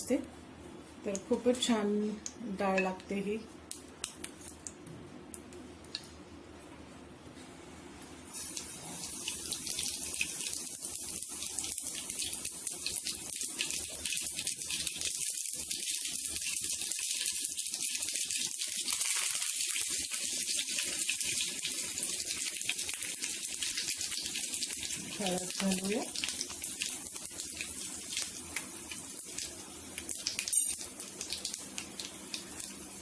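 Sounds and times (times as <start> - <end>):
seeds sizzling in hot oil: 8.3 - 33.0.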